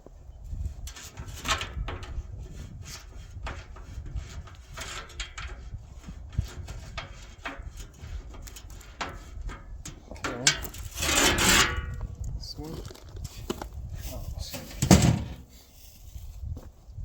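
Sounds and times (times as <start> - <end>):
wrench clicking and scraping on bolt: 6.4 - 12.0.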